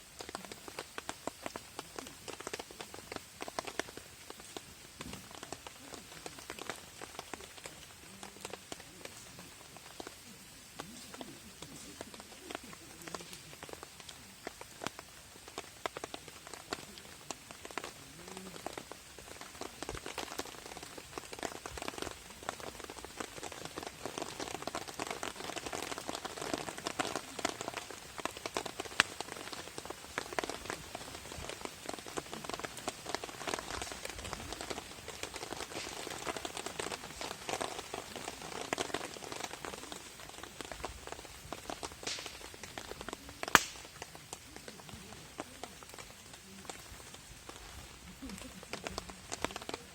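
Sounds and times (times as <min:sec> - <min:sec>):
rain pattering on a tarp: 0:00.0 - 0:49.9
sharp loud crack: 0:42.0 - 0:42.5, 0:43.5 - 0:44.0.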